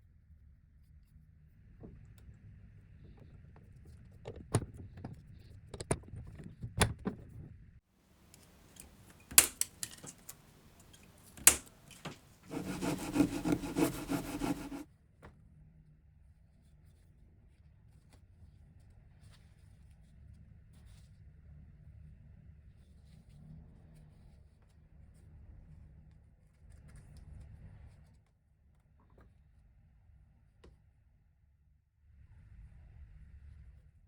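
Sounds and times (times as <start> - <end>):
metal parts clinking: 8.4 - 12.2
sharp clacks: 8.4 - 14.8.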